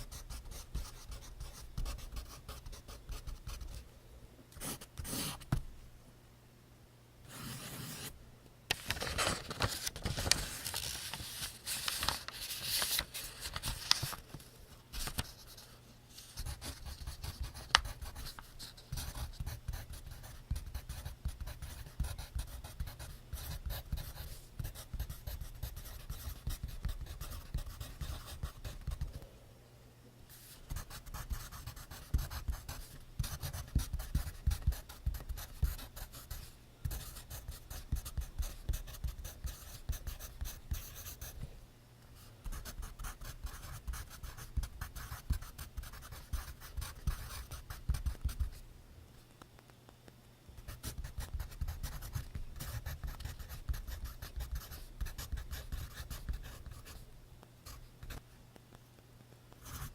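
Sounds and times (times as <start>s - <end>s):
pencil scratching on paper: 4.6s - 5.4s, 7.3s - 8.1s, 16.4s - 29.0s, 30.7s - 41.3s, 50.8s - 57.0s.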